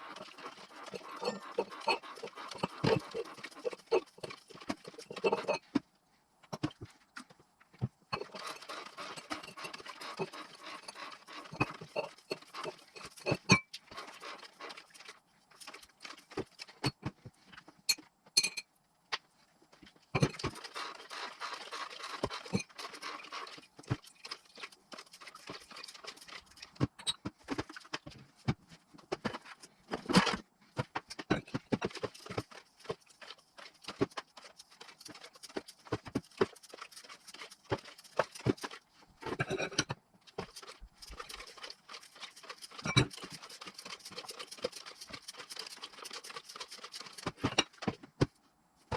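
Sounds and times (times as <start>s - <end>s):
hand tools clicking and tapping: 0.0s - 5.9s, 20.2s - 48.9s.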